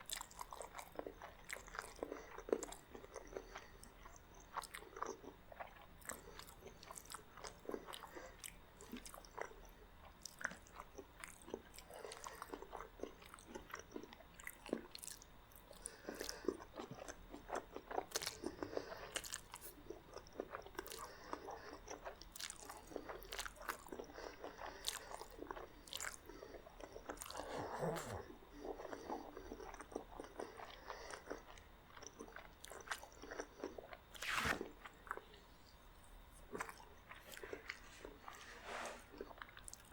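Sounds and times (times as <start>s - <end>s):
chewing and biting food: 0.0s - 38.5s, 39.1s - 39.9s
crisp crunches: 34.2s - 35.0s.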